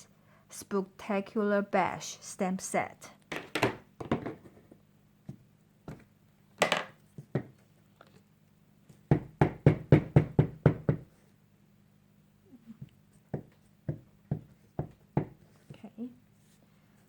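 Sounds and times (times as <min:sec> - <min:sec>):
knocks on craft table: 0:03.3 - 0:04.6, 0:06.6 - 0:07.5.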